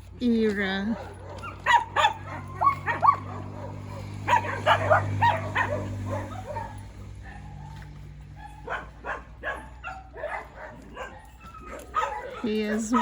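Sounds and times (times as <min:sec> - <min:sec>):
dogs barking and yipping: 0:00.0 - 0:13.0.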